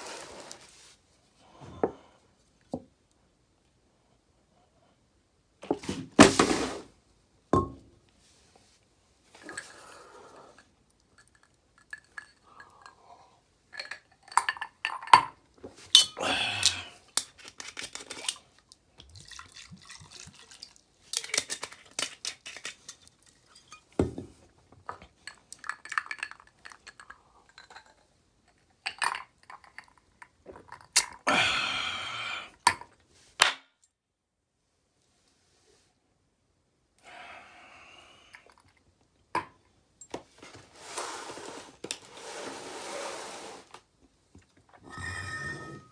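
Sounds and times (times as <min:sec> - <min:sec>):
metal utensils clinking: 0:15.9 - 0:16.2
utensils scraping cookware: 0:44.8 - 0:45.9.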